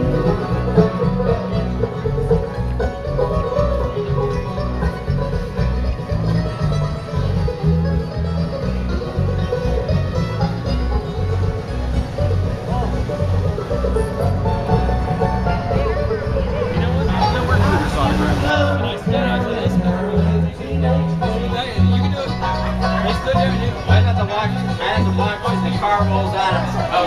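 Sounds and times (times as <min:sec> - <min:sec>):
banjo: 0:00.0 - 0:27.0
bluegrass band playing: 0:00.0 - 0:27.0.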